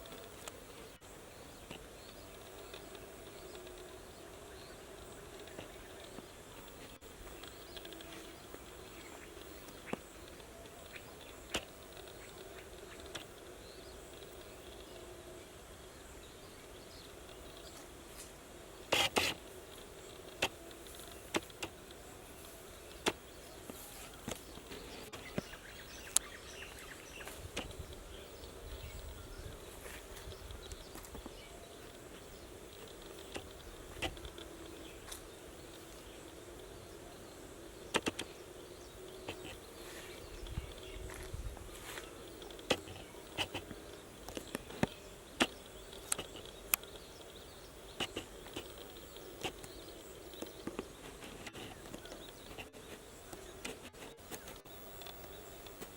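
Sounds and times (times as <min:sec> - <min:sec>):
faint steady background hiss: 0:00.0 - 0:55.9
rural background hush: 0:00.0 - 0:55.9.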